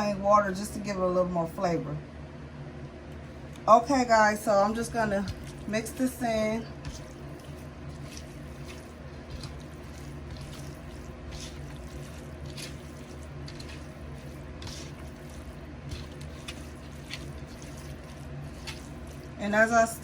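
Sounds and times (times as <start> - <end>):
wet squishing and squelching: 4.5 - 20.0.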